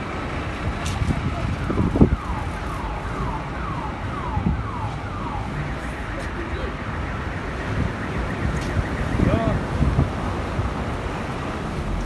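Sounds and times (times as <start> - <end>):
wind buffeting microphone: 0.0 - 12.0
electronic siren falling tone: 1.4 - 9.7.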